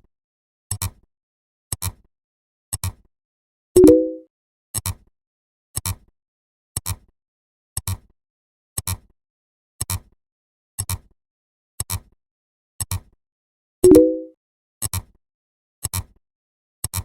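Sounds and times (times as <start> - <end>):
sharp double-click sound effect: 3.8 - 4.2, 13.8 - 14.3.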